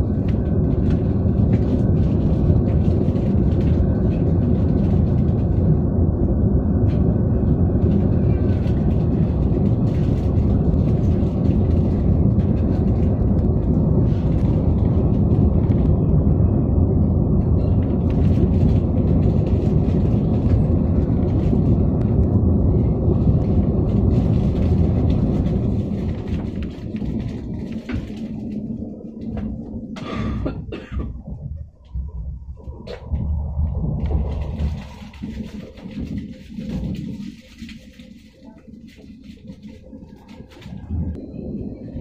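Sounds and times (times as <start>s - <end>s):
train rumble from inside: 0.0s - 42.0s.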